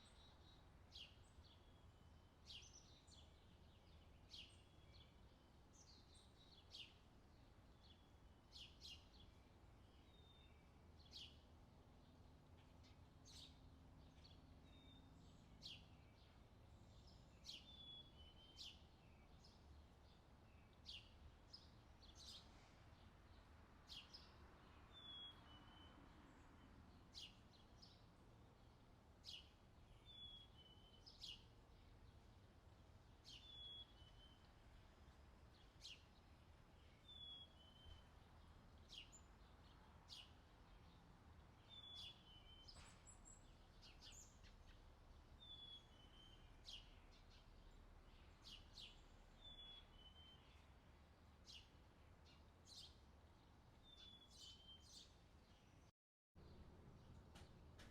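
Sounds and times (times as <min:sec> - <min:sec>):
bird chirping: 0:12.6 - 0:22.6, 0:23.3 - 0:32.6, 0:33.2 - 0:34.8, 0:35.5 - 0:50.8, 0:51.4 - 0:53.1, 0:53.7 - 0:57.9.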